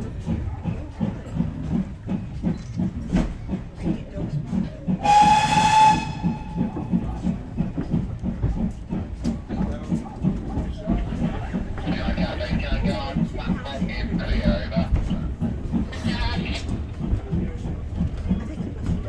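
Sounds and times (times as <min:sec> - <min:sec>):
steam train running: 0:00.0 - 0:19.0
steam locomotive whistle: 0:05.0 - 0:07.0.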